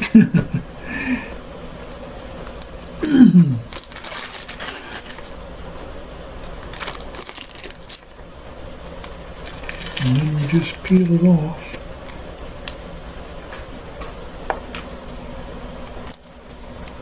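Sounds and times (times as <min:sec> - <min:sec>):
parchment paper crinkling: 0:03.7 - 0:05.4, 0:06.2 - 0:08.2, 0:08.9 - 0:12.8.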